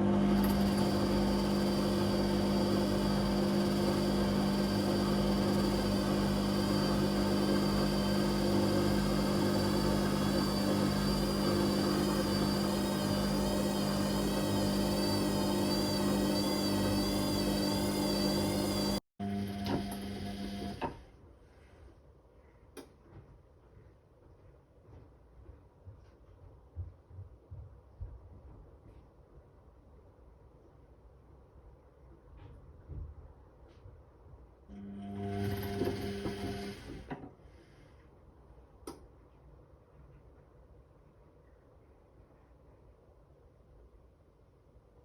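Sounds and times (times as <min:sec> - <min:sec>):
washing machine motor humming: 0:00.0 - 0:21.0, 0:34.7 - 0:37.1.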